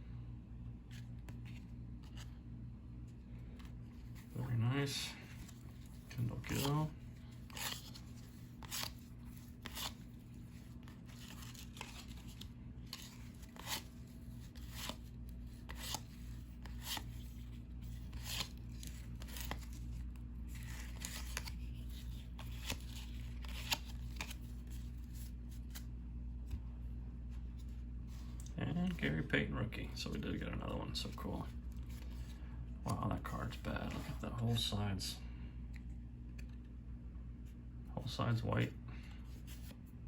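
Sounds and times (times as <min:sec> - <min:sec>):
steady low hum: 0:00.0 - 0:40.0
cardboard cards flipping: 0:00.9 - 0:02.4, 0:05.2 - 0:26.6.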